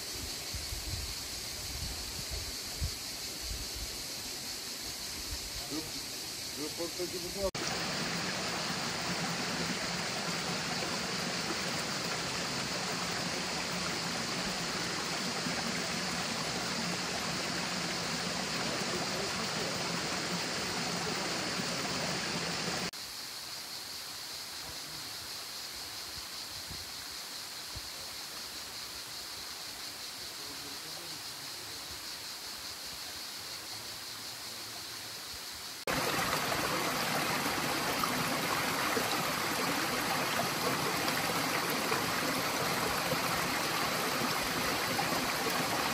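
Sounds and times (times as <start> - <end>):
stream water rushing: 6.6 - 22.9, 35.9 - 45.9.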